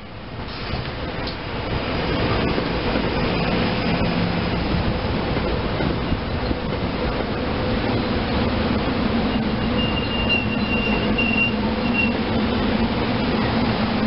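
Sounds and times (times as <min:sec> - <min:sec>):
train wheels rumbling on rail: 0:00.0 - 0:14.0
high wheel squeal: 0:09.3 - 0:12.3.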